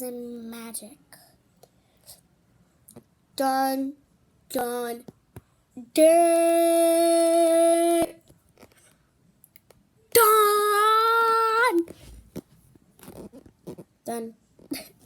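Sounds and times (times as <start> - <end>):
faint clicks and rustles: 11.8 - 15.0.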